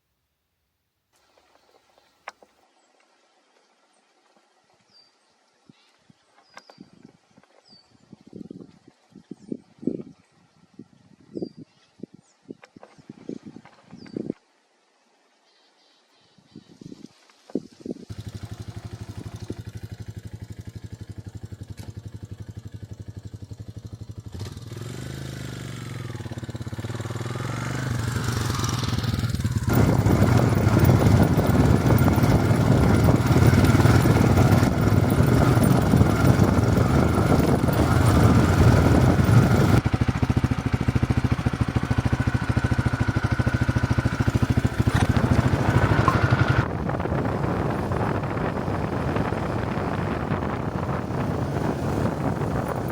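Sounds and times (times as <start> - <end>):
motorcycle engine: 18.1 - 52.9.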